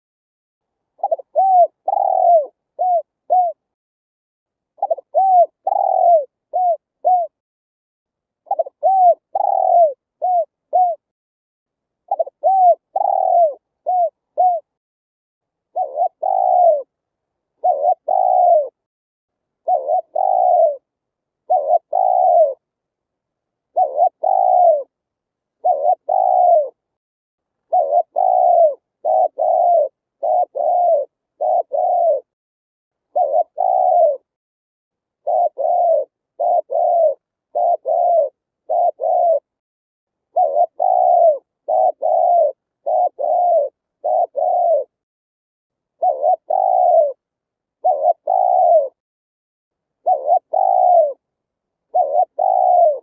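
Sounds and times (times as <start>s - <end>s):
dove cooing: 1.0s - 3.7s, 4.8s - 7.4s, 8.4s - 11.1s, 12.1s - 14.7s, 15.7s - 16.9s, 17.6s - 18.8s, 19.6s - 22.6s, 23.7s - 25.0s, 25.6s - 26.8s, 27.7s - 32.4s, 33.1s - 34.4s, 35.2s - 39.6s, 40.3s - 45.0s, 46.0s - 49.0s, 50.0s - 51.2s, 51.8s - 53.0s.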